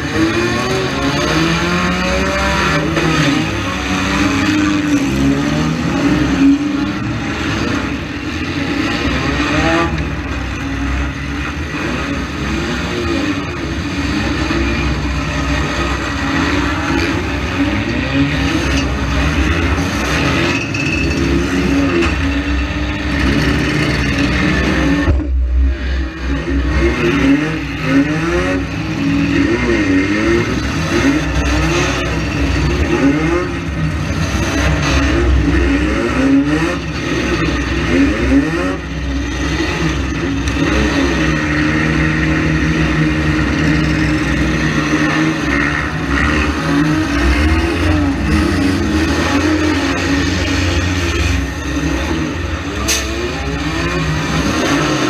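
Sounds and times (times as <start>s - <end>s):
car engines revving hard: 0.0s - 55.0s
knocks and clatter: 18.6s - 27.5s.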